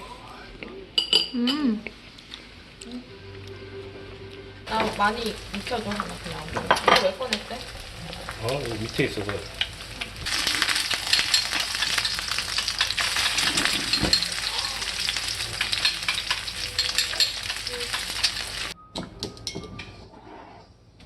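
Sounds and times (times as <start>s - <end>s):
food sizzling in a pan: 4.7s - 18.8s
stirring scrape and clatter: 10.3s - 14.5s.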